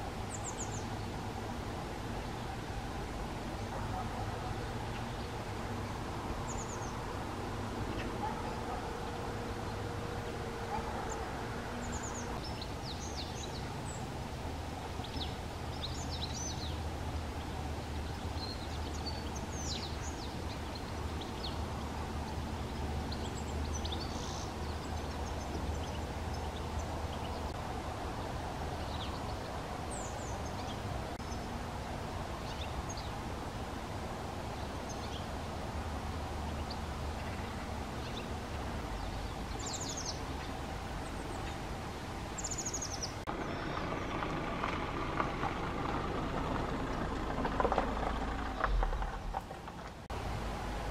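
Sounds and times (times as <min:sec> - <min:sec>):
blue tits calling: 0:06.4 - 0:07.0, 0:14.8 - 0:27.6, 0:36.5 - 0:44.4.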